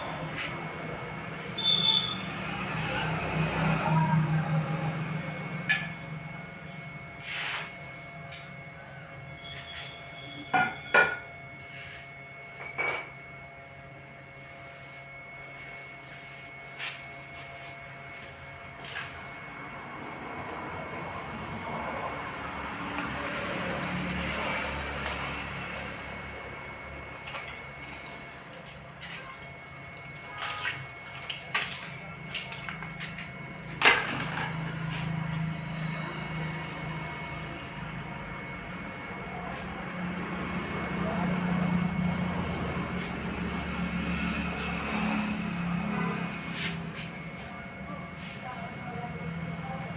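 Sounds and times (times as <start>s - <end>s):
steady background hum: 0.0s - 49.9s.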